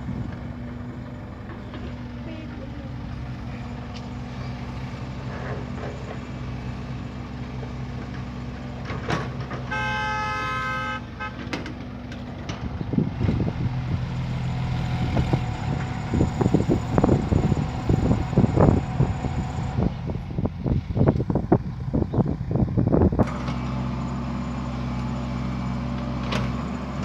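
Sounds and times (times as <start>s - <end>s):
heavy diesel engine running: 0.0s - 27.0s
vehicle horn: 9.7s - 11.6s.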